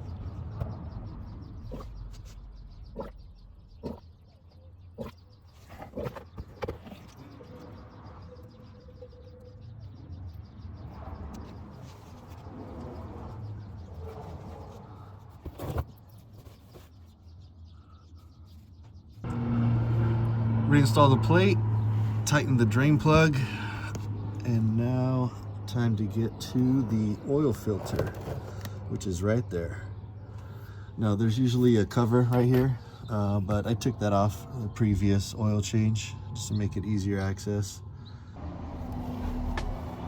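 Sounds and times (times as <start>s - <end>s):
steady low rumble: 0.0s - 4.4s, 19.2s - 40.0s.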